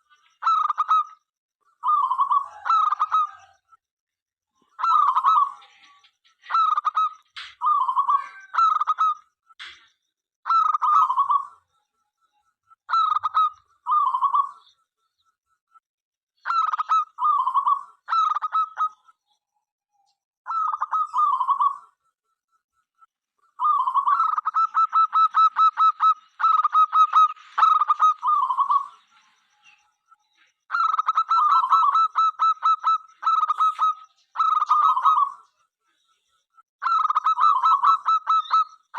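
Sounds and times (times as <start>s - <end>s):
dove cooing: 1.8s - 3.6s, 4.8s - 9.2s, 16.5s - 19.0s, 20.5s - 22.0s, 23.5s - 29.1s, 30.7s - 35.5s, 36.8s - 38.8s.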